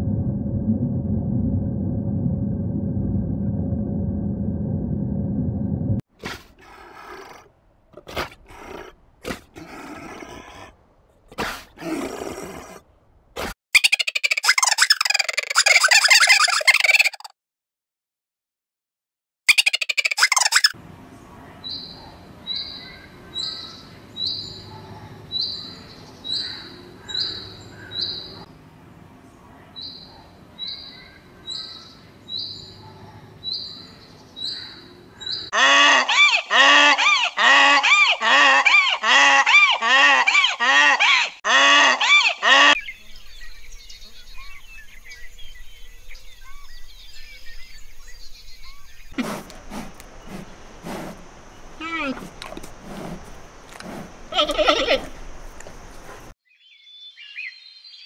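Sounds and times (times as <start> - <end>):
faint bird chirping: 19.6 - 28.5, 42.8 - 58.0.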